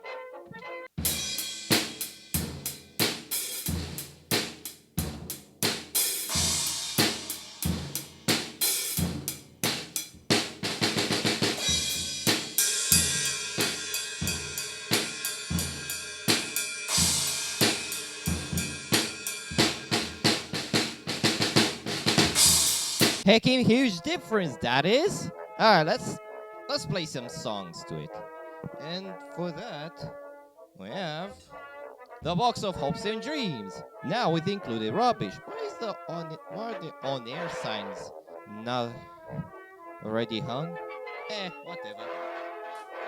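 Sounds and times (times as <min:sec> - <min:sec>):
cymbals: 0:01.0 - 0:23.3
snare drum hits: 0:01.1 - 0:23.3.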